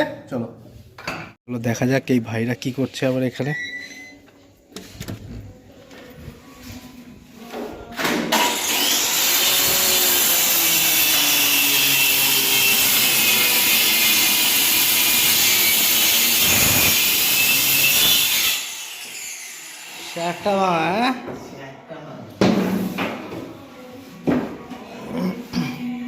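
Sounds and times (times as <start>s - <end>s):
electric saw cutting wood: 8.3s - 20.6s.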